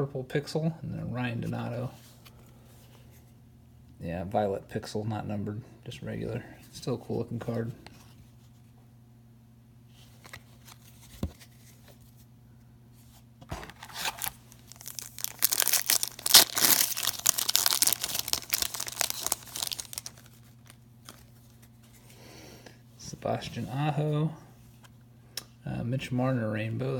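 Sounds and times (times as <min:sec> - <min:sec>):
foil wrapper tearing and crinkling: 0:13.6 - 0:21.3.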